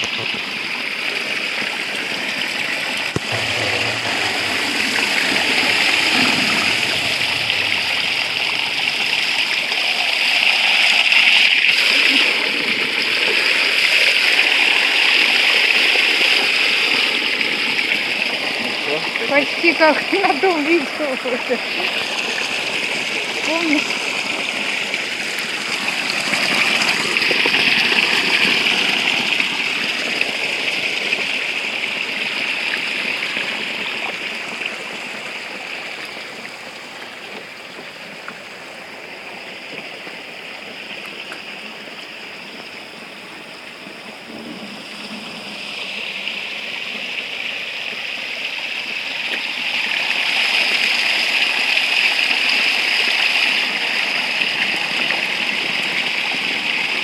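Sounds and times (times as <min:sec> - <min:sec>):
spring water running and splashing: 0:00.0 - 0:57.0.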